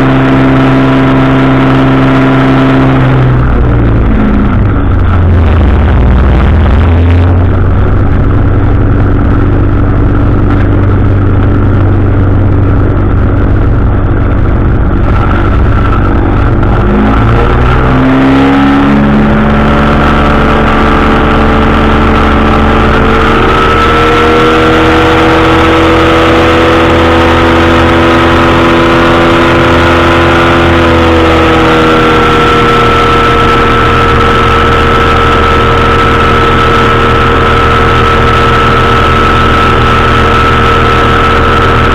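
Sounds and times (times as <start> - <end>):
engine and propeller running: 0.0 - 41.9.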